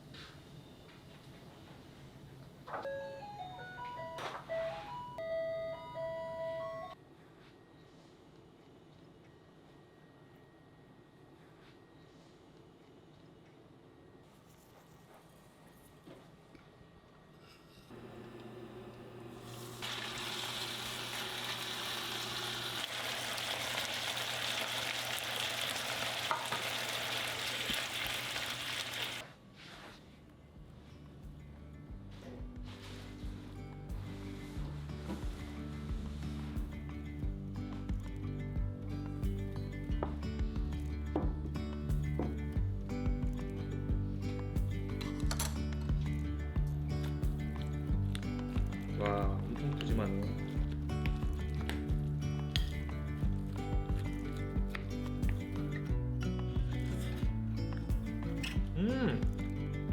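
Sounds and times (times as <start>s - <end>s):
electronic beeping jingle: 2.9s - 7.0s
faint sizzle: 18.0s - 29.8s.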